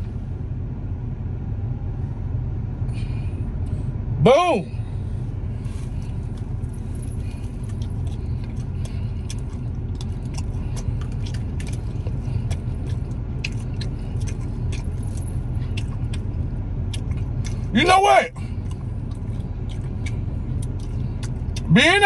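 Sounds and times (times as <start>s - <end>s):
low vehicle rumble: 0.0s - 22.0s
crunching fried chicken: 5.6s - 22.0s.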